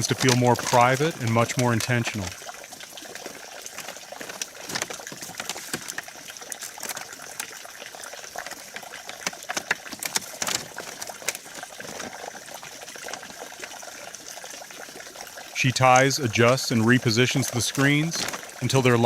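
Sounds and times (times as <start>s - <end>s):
bamboo poles clicking and knocking: 0.0s - 2.0s, 3.6s - 7.5s, 8.4s - 12.3s
steady hiss: 15.6s - 19.0s.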